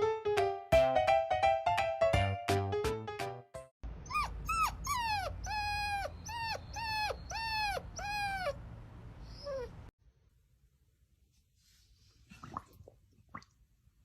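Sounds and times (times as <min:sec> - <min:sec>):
dog whining: 0:04.0 - 0:08.6, 0:09.2 - 0:09.9.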